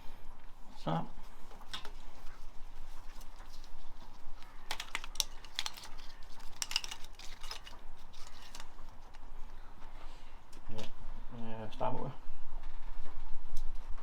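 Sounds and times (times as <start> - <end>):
clicks of small hard parts handled: 4.6 - 9.2.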